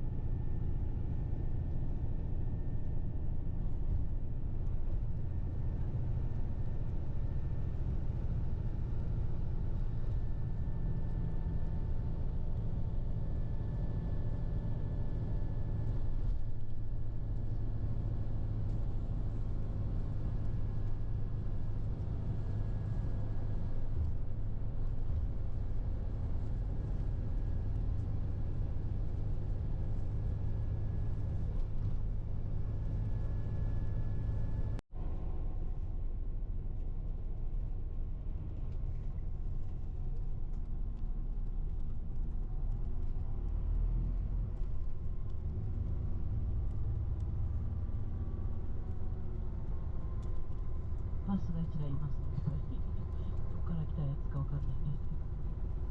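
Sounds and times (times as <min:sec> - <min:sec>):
bus engine rumble: 0:00.0 - 0:55.9.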